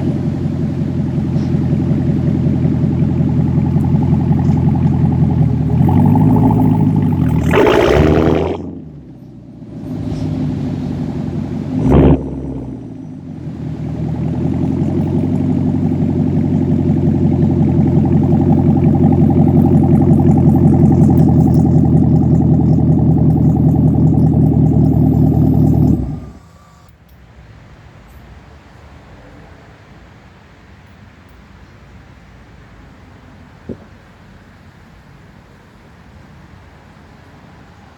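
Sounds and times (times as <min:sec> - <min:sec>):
car exhaust revving: 0:00.0 - 0:26.9
exhaust blip: 0:00.0 - 0:26.9
exhaust droning: 0:00.0 - 0:26.9.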